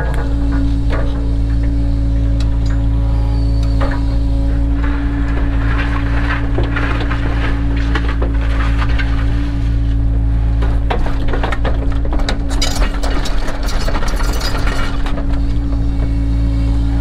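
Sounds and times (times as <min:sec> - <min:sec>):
excavator diesel engine droning: 0:00.0 - 0:17.0
clicks clinks and scraping: 0:12.5 - 0:15.0.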